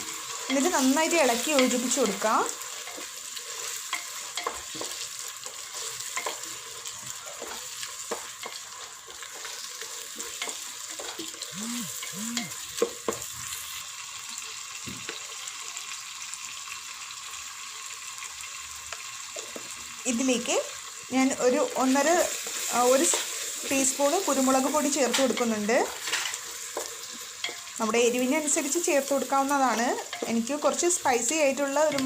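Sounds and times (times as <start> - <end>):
masala sizzling in a pan: 0.0 - 32.0
spoon scraping and tapping pan: 0.2 - 11.4, 25.0 - 27.8, 30.0 - 30.5.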